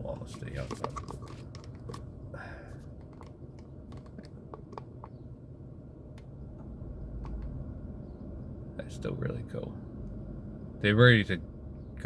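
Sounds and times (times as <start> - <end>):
car engine idling: 0.0 - 12.0
light clicks and taps: 6.1 - 7.6.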